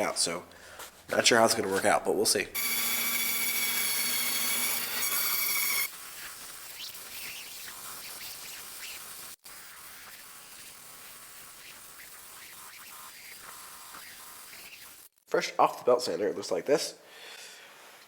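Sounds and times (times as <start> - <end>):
belt sander whining: 2.6 - 5.9.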